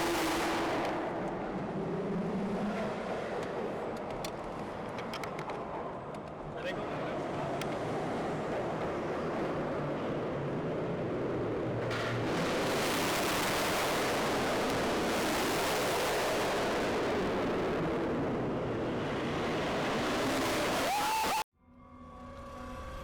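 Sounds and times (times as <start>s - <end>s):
car engines and exhausts rushing: 0.0s - 21.4s.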